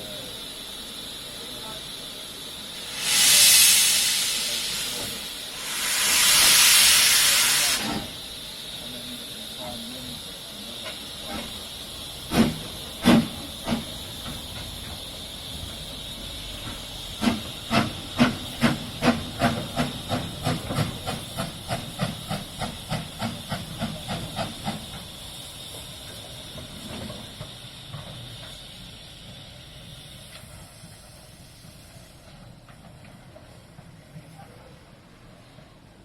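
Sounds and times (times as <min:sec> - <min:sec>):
steam hissing: 0:00.0 - 0:36.0
locomotive exhaust chuffs: 0:02.6 - 0:09.9.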